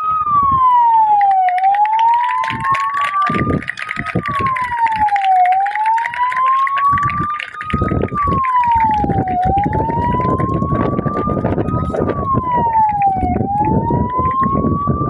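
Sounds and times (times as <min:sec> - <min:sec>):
loud background din: 0:00.0 - 0:15.0
wailing siren: 0:00.0 - 0:15.0.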